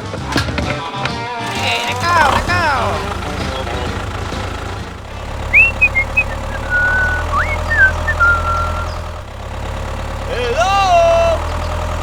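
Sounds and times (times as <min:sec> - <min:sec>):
engine humming: 0:00.0 - 0:12.0
short high chirping notes: 0:05.5 - 0:09.1.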